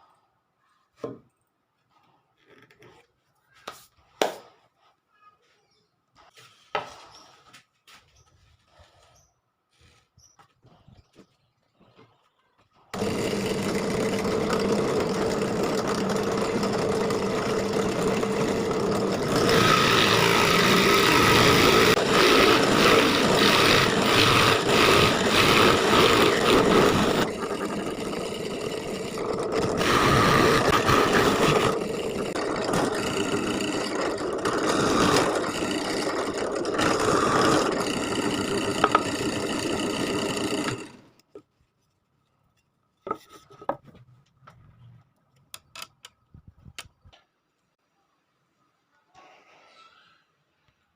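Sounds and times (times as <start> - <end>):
electric woodworking power tool: 12.9 - 41.2.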